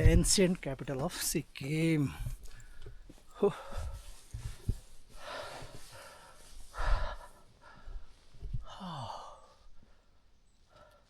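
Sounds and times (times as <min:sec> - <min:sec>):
person breathing heavily: 0:02.3 - 0:11.0
person sighing: 0:08.6 - 0:09.5.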